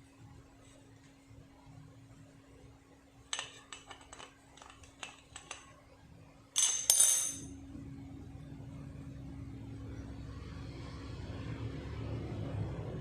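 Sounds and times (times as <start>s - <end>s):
metal tools clinking: 6.6s - 7.5s.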